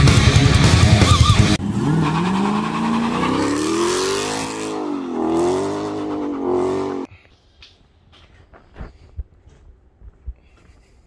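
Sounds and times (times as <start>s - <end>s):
car engine accelerating: 0.0s - 7.1s.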